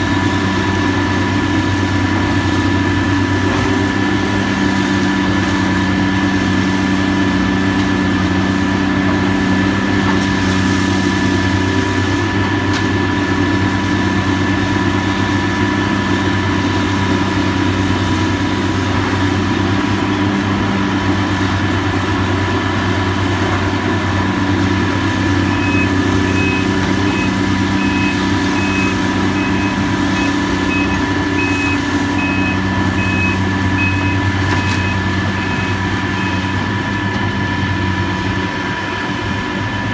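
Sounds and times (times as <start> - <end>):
diesel machinery engine hum: 0.0 - 39.9
backup alarm beeping: 25.5 - 36.6.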